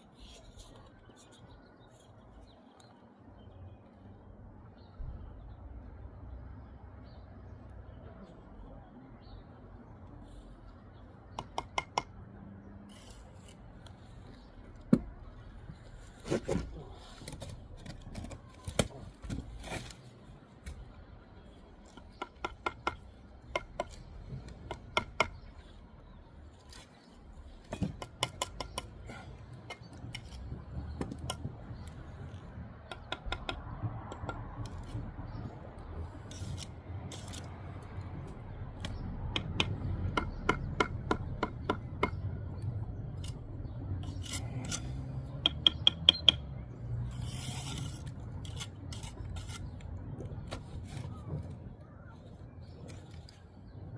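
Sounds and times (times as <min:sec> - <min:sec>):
taps and clicks on brick: 0:11.3 - 0:12.2, 0:27.7 - 0:29.0, 0:45.4 - 0:46.5
trowel scraping mortar: 0:12.9 - 0:13.9, 0:36.2 - 0:37.5, 0:44.0 - 0:45.2, 0:47.0 - 0:49.8.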